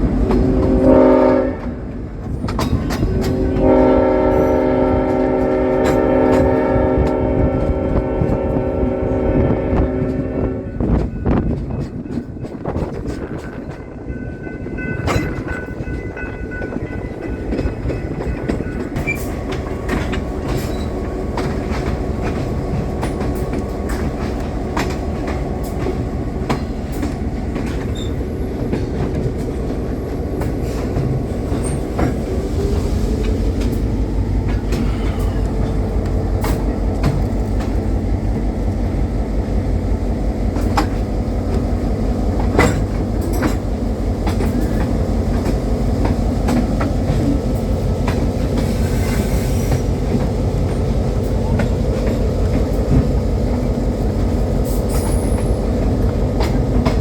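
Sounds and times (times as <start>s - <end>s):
train rolling on track: 0.0s - 57.0s
wheels clicking over rail joints: 1.6s - 6.6s, 10.8s - 32.4s, 40.5s - 49.0s.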